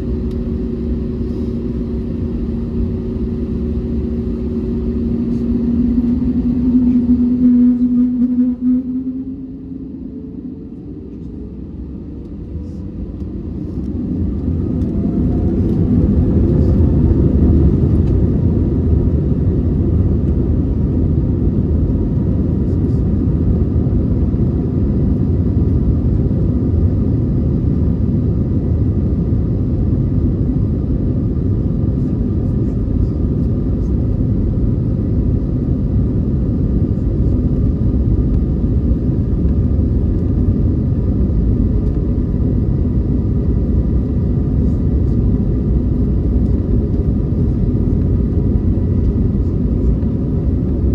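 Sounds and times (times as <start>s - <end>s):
jet engines spooling up: 2.8s - 18.6s.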